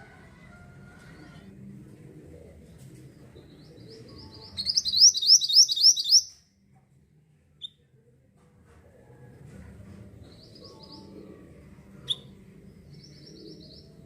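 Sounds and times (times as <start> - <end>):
songbird whistled notes: 4.6 - 6.4.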